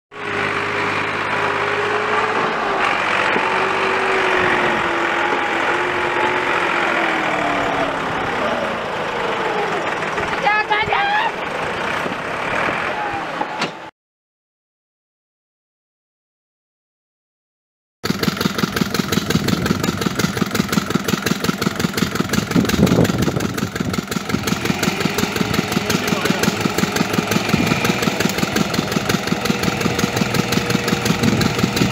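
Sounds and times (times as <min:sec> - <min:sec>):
tractor diesel engine running: 0:00.1 - 0:13.6, 0:18.0 - 0:31.9.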